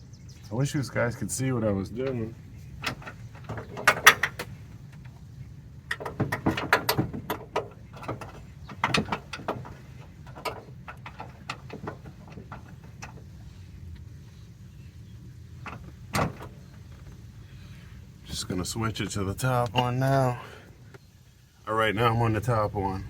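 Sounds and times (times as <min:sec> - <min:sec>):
metal knocking on metal: 0:02.0 - 0:04.6, 0:05.9 - 0:13.4.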